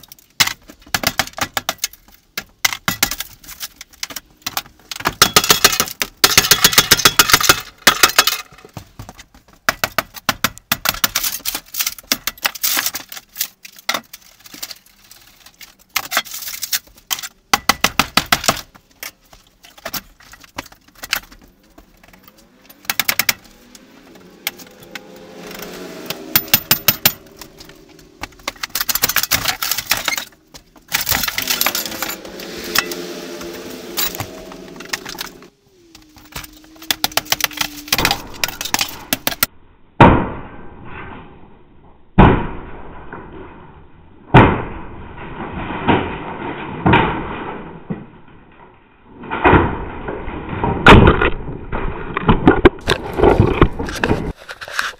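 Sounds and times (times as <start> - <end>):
rapid metallic rattling and clattering: 0.0 - 23.7, 26.3 - 32.9
low hum with sliding pitch: 31.4 - 39.9.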